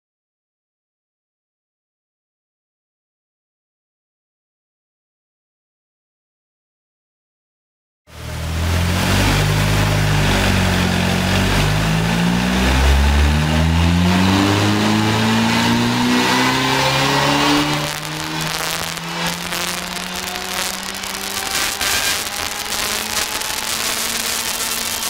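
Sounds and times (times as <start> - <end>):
car engine revving under load: 8.1 - 25.0
exhaust crackles and pops: 8.1 - 25.0.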